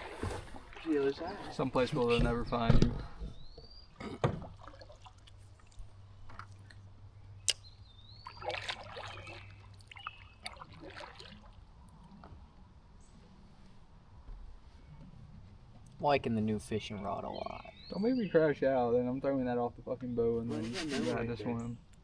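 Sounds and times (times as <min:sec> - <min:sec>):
water sloshing around boat: 0:00.0 - 0:06.9, 0:08.0 - 0:12.5.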